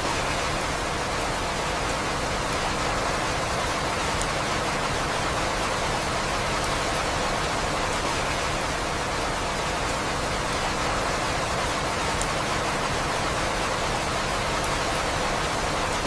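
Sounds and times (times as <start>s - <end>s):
steady rain hiss: 0.0s - 16.0s
faint raindrop ticks: 1.7s - 4.8s, 5.5s - 8.7s, 9.6s - 16.0s.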